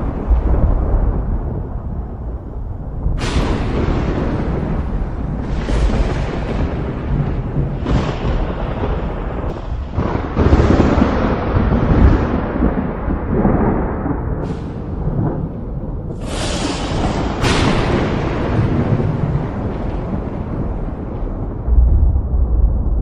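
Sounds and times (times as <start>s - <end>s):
sharp thunder claps: 0.0s - 23.0s
thunder rumbling: 0.0s - 23.0s.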